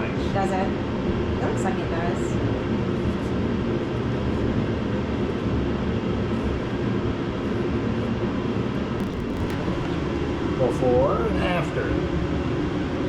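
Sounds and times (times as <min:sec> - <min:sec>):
machine droning: 0:09.0 - 0:11.1.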